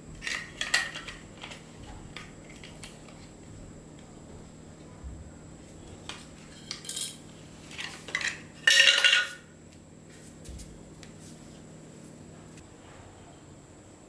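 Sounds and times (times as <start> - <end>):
metal objects clinking: 6.5 - 7.2, 7.8 - 9.4.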